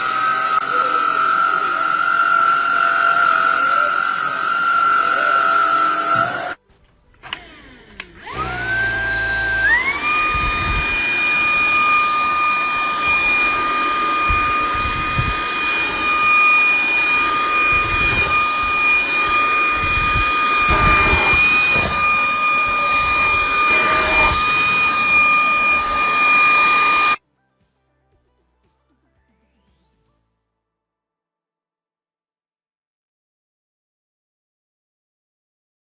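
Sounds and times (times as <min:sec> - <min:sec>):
vacuum cleaner motor whine: 0:00.0 - 0:06.6, 0:07.2 - 0:27.2.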